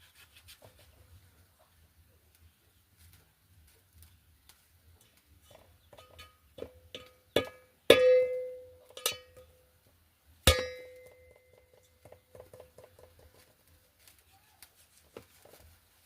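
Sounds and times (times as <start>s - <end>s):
metal pots clanking: 5.5s - 9.5s, 10.5s - 12.9s.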